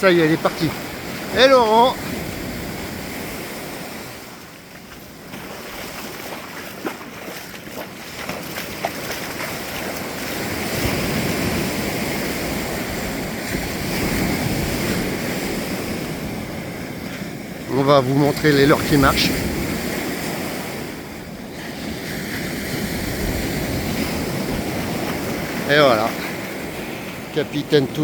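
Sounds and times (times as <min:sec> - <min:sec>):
water washing: 0:00.0 - 0:02.2, 0:03.8 - 0:19.8, 0:22.7 - 0:28.0
wind rushing over microphone: 0:09.3 - 0:28.0.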